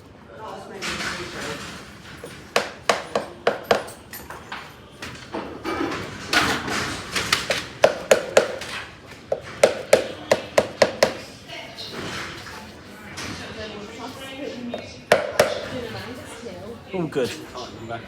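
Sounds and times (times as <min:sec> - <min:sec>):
hammer tapping horseshoe nails: 0:02.2 - 0:04.4, 0:07.4 - 0:11.3, 0:15.1 - 0:15.8.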